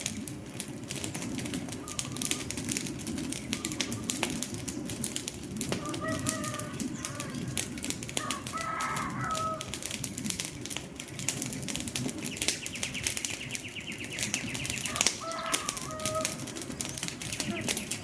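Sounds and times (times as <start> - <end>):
wood fire crackling: 0.0 - 18.0
bird calling: 1.7 - 5.0, 5.7 - 9.7, 12.3 - 18.0.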